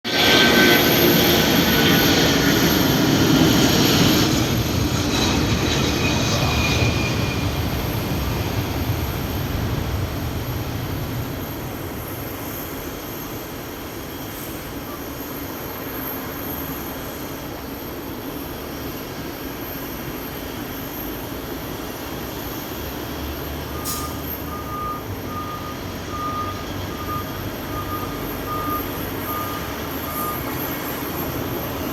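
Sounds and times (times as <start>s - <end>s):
jet engines at take-off: 0.0s - 31.9s
vehicle reversing alarm beeping: 23.6s - 31.9s.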